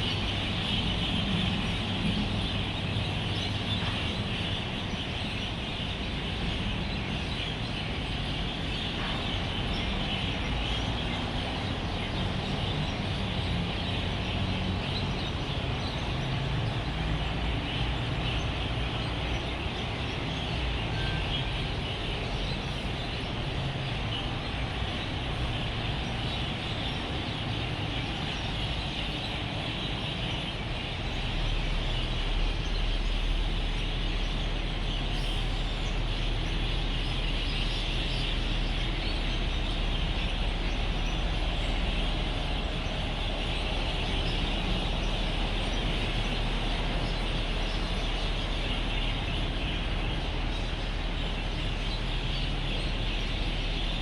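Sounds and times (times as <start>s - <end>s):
flock of birds chirping: 0.0s - 54.0s
road traffic rumble: 0.0s - 54.0s.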